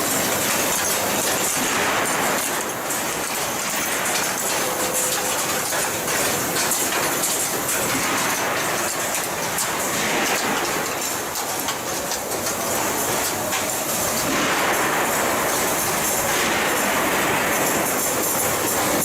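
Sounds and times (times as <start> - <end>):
machinery clattering and rattling: 0.0 - 19.0.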